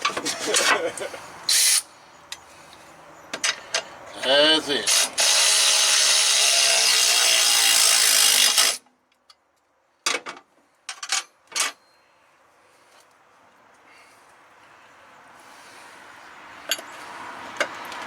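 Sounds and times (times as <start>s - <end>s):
compressed air hissing: 1.5s - 1.9s
short sharp air bursts: 1.5s - 1.9s.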